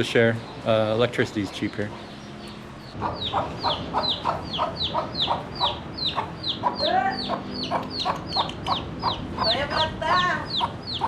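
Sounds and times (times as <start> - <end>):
hen cackling: 3.0 - 11.0.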